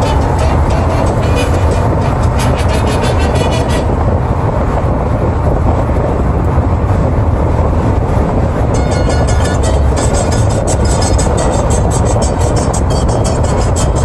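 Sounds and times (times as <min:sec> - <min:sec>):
train rumbling across bridge: 0:00.0 - 0:14.0
high-pitched clatter and ringing: 0:08.7 - 0:14.0.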